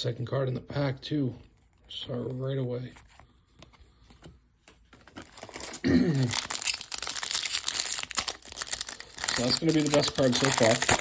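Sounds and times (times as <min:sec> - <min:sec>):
foil wrapper crinkling and tearing: 0:05.2 - 0:11.0.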